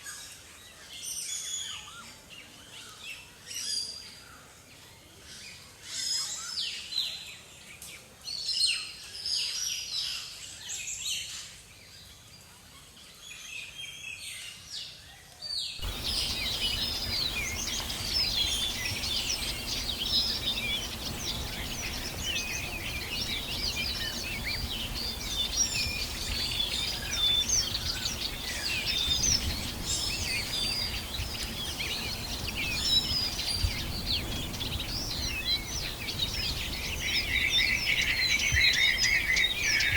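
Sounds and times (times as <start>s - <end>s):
dense bird chorus: 0.0s - 39.9s
birds chirping: 15.8s - 39.9s
steady forest hiss: 15.8s - 39.9s.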